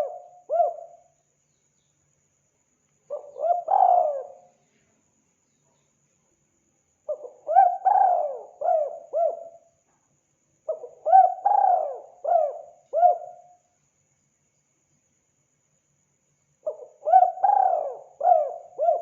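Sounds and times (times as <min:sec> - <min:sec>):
dove cooing: 0:00.0 - 0:01.0, 0:03.1 - 0:04.5, 0:07.1 - 0:09.6, 0:10.7 - 0:13.4, 0:16.7 - 0:19.0.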